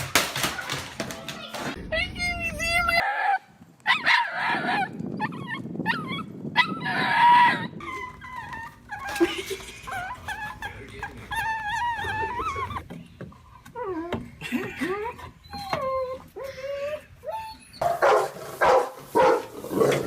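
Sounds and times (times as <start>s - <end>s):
dog whining: 2.9s - 12.9s, 13.6s - 17.8s.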